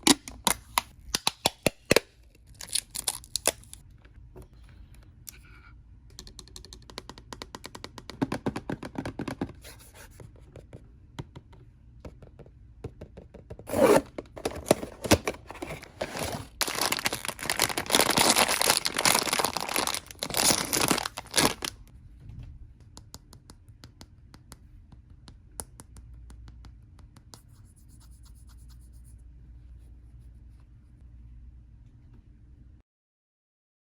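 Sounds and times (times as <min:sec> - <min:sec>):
packaging tearing and crinkling: 0:02.5 - 0:03.8, 0:13.7 - 0:21.8.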